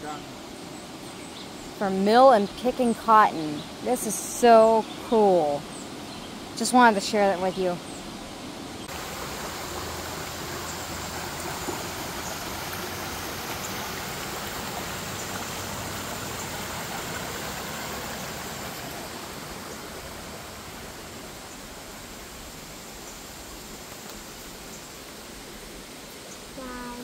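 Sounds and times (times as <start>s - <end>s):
waterfall rushing: 8.8s - 25.9s.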